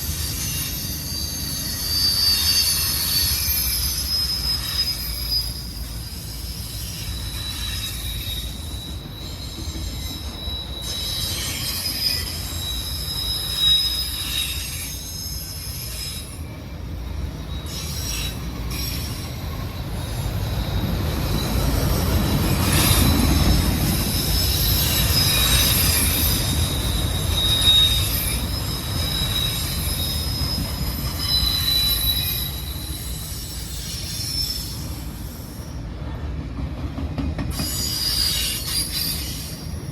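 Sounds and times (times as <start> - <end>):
train rumble: 0.0 - 39.9
train wheels squealing: 0.0 - 39.9.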